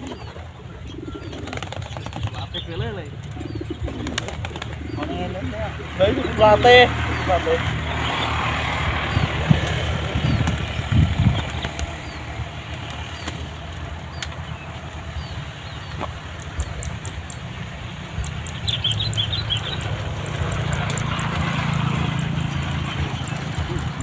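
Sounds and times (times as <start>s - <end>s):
pigeon wings flapping: 1.2s - 5.1s, 9.3s - 15.1s.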